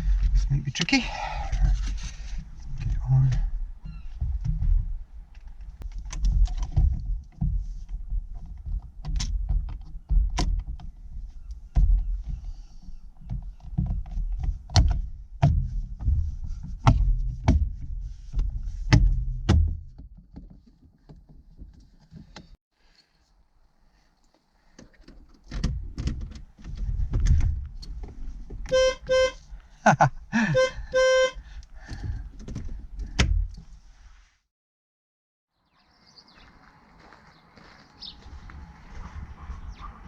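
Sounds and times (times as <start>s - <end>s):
car parts clicking and knocking: 1.5s - 22.6s, 24.8s - 28.8s, 31.6s - 33.6s
low thumps: 13.9s - 20.0s.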